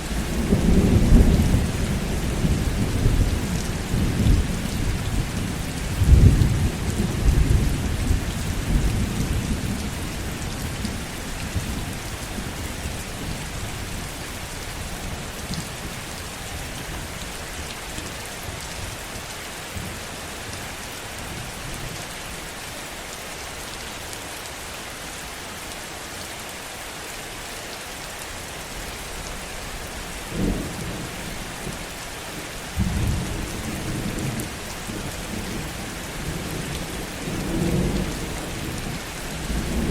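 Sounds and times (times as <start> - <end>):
heavy rain falling: 0.0 - 39.9
low thunder rumbles: 0.1 - 13.4, 32.8 - 39.9.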